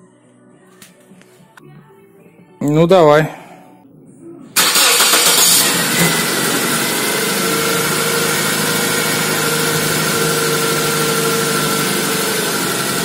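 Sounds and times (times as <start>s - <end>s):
car engine idling: 4.6s - 13.0s.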